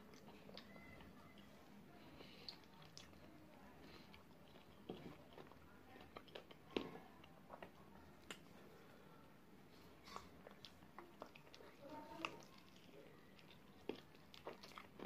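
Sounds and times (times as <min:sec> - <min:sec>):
person chewing: 0:02.2 - 0:08.8, 0:10.0 - 0:15.0.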